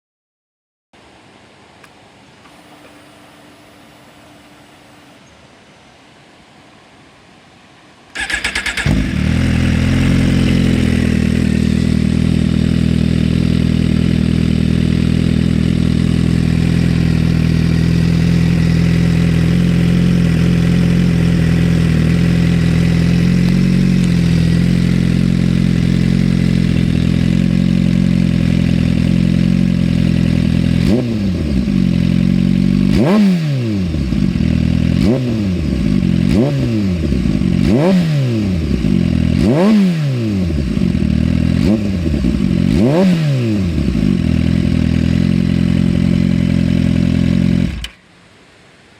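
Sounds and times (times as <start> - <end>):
engine cranking: 8.2 - 9.3
motorcycle engine idling and revving: 8.2 - 48.0.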